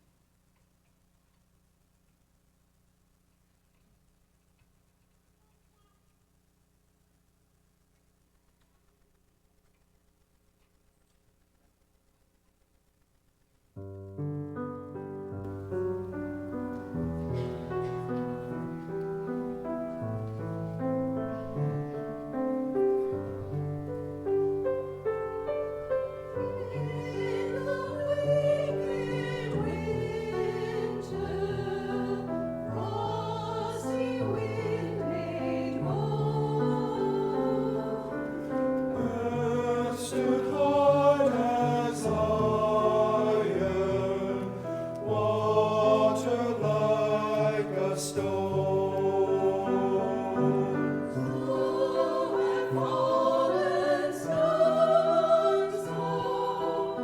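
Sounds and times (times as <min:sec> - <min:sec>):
piano or organ accompaniment: 0:13.8 - 0:57.0
choir singing a hymn: 0:15.4 - 0:57.0.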